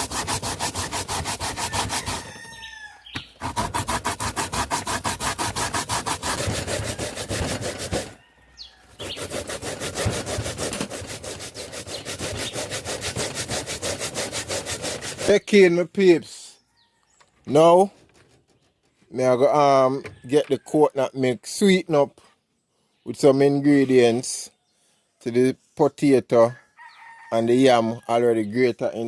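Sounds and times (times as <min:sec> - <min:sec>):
grater rasping: 0:00.0 - 0:02.5, 0:03.4 - 0:08.2, 0:09.0 - 0:15.5.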